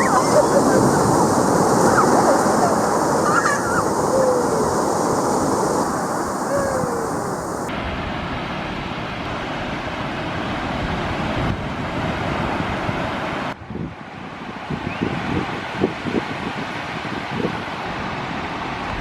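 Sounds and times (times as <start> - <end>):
faint high calls: 0.0 - 7.7
wind buffeting microphone: 0.0 - 8.1
ocean surf washing in: 0.0 - 19.0.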